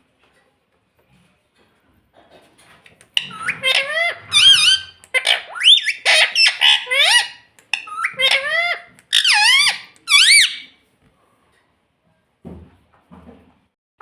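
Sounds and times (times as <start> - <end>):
parakeet calling: 3.2 - 10.7.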